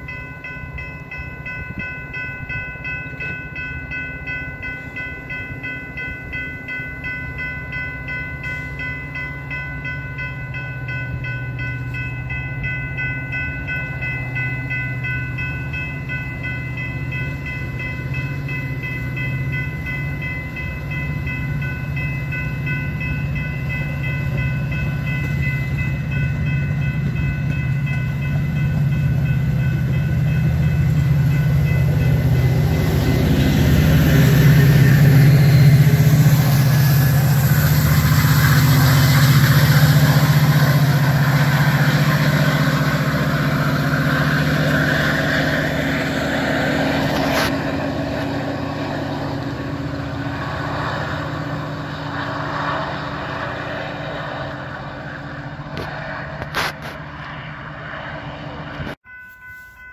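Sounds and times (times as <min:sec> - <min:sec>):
diesel locomotive rumbling: 0:00.0 - 0:59.9
bell ringing rapidly: 0:59.0 - 0:59.9.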